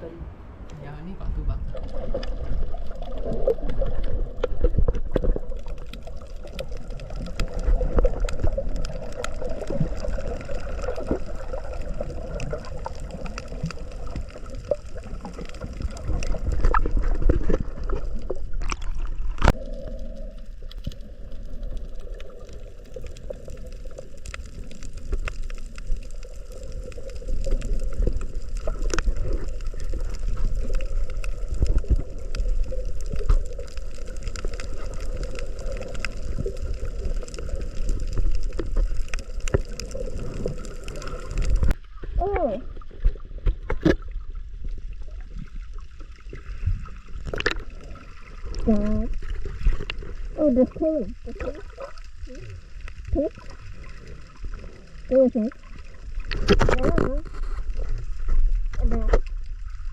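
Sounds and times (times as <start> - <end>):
low rumble: 0.0 - 23.8
water gurgling and sloshing: 0.0 - 59.9
small water splashes: 1.3 - 59.9.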